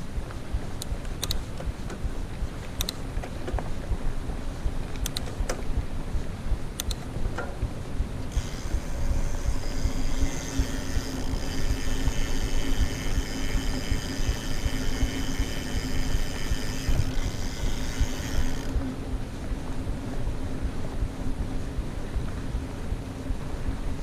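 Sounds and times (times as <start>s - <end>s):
tyres and wind rumble: 0.0s - 24.0s
bike freehub ratcheting: 8.3s - 18.8s.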